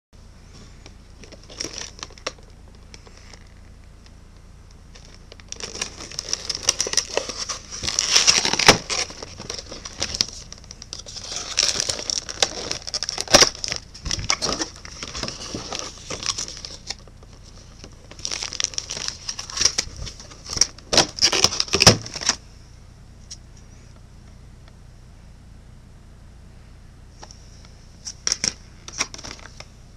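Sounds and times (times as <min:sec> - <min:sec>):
packaging crinkling and tearing: 0:01.2 - 0:03.6, 0:04.9 - 0:22.4, 0:28.0 - 0:29.6.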